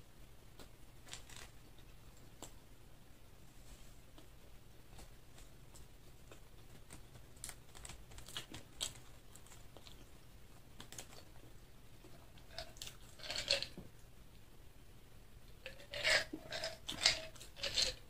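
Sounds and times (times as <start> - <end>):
chewing food: 5.4 - 13.8.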